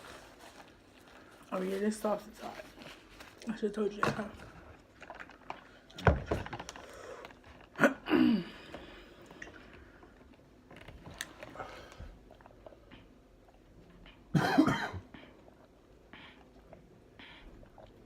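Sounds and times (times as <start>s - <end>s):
chewing sandwich: 4.4s - 6.0s, 9.2s - 14.3s.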